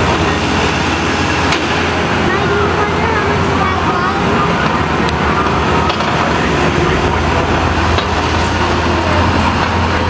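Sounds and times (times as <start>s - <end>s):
excavator engine running: 0.0s - 10.0s.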